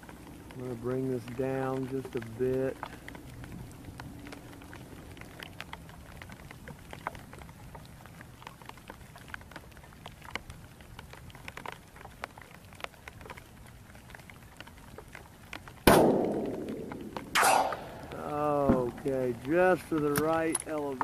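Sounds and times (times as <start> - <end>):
raindrops ticking close by: 0.0 - 21.0
heavy rain hissing: 16.0 - 21.0.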